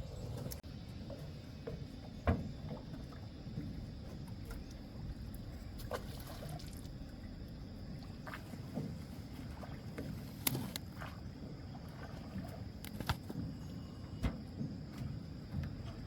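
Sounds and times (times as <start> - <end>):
water lapping around boat hull: 0.0 - 16.0
knocks on boat: 1.6 - 3.0, 14.2 - 16.0.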